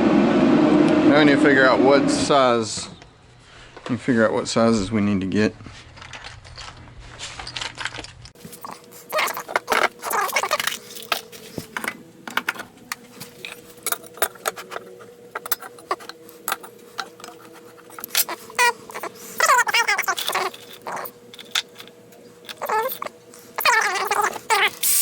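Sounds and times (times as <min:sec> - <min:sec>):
metal tools clicking and rattling: 0:05.9 - 0:12.6, 0:13.3 - 0:25.0
dog whining: 0:08.6 - 0:10.8, 0:17.9 - 0:21.2, 0:22.5 - 0:25.0.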